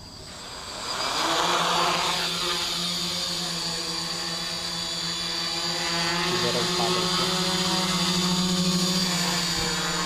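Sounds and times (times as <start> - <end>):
drone motors and propellers whining: 0.0 - 10.0.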